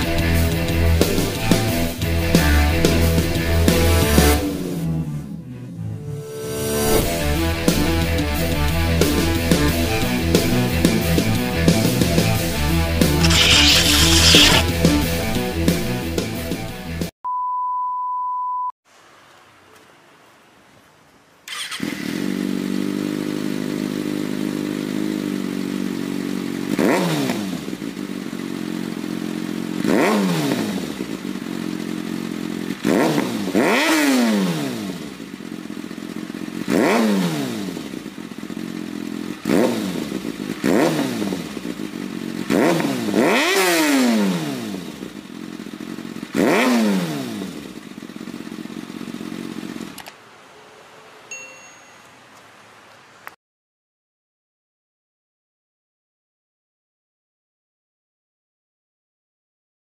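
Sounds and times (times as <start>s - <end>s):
motorcycle engine idling and revving: 0.0s - 17.1s, 21.5s - 51.1s.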